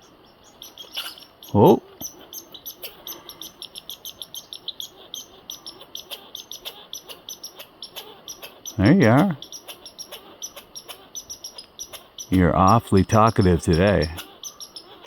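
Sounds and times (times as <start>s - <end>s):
squirrel chattering: 0.0s - 15.0s.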